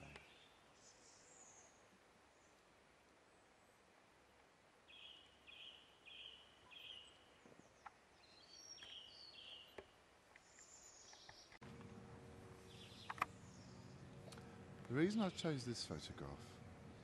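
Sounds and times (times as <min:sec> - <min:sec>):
bird calls: 0:00.0 - 0:01.8, 0:04.9 - 0:11.6, 0:12.6 - 0:16.3
faint background hiss: 0:00.0 - 0:17.0.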